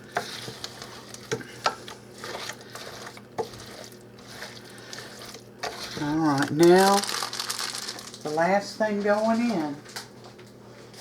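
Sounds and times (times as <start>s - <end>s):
spoon stirring thick soup: 0.0s - 7.0s.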